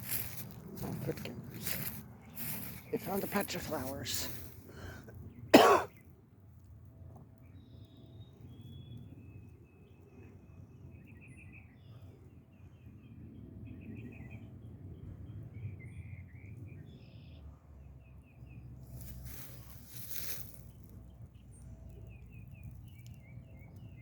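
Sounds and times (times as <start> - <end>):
steady low rumble: 0.0 - 5.4
small birds chirping: 0.0 - 5.5, 18.2 - 24.0.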